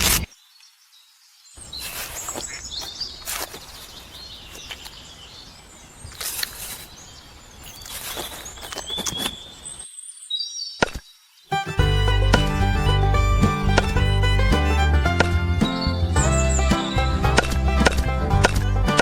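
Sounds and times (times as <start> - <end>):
outdoor background hiss: 0.0 - 18.9
birds chirping: 0.0 - 19.0
sharp clicks or taps: 11.8 - 19.0.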